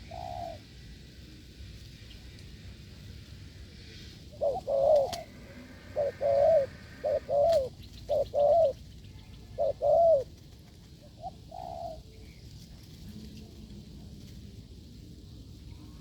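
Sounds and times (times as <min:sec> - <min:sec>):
dove cooing: 0:00.0 - 0:00.7, 0:04.2 - 0:12.3.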